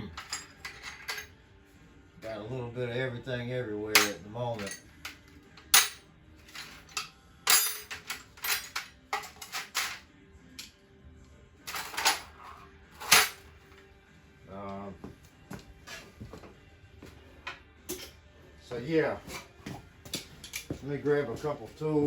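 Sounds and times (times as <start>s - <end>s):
metal tools clinking: 0.0s - 1.4s, 4.0s - 10.0s, 11.7s - 13.4s, 20.1s - 20.8s
faint music: 0.0s - 22.0s.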